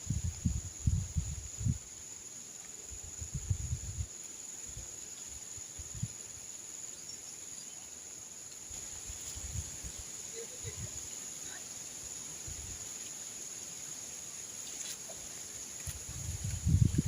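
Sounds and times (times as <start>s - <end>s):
wind gusting on microphone: 0.0s - 1.9s, 3.0s - 4.1s, 8.9s - 11.0s, 15.8s - 17.0s
insects droning: 0.0s - 17.0s.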